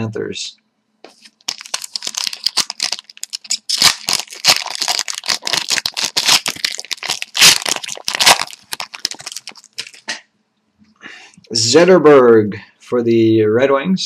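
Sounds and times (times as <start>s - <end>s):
cards being handled: 1.0s - 10.2s
card pack wrapper crinkling: 1.1s - 10.2s.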